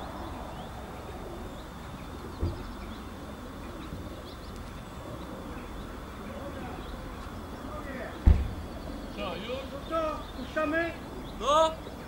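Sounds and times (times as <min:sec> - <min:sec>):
small birds chirping: 0:00.0 - 0:12.0
dull thump: 0:08.2 - 0:08.7.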